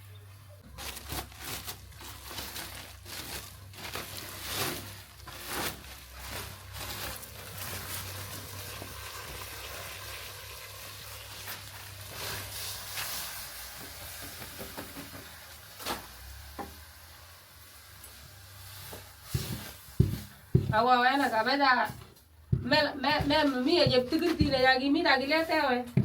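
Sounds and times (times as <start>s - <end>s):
food sizzling in a pot: 7.6s - 21.4s.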